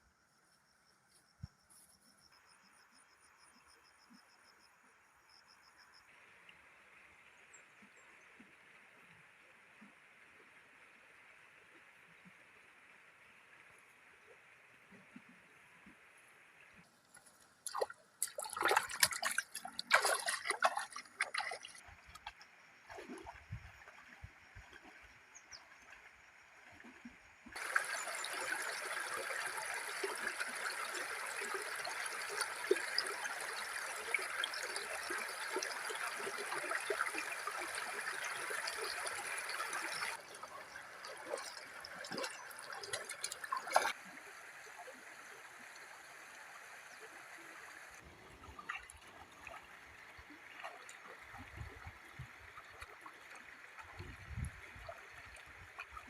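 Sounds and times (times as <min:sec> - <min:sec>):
trickling water: 0:05.4 - 0:56.0.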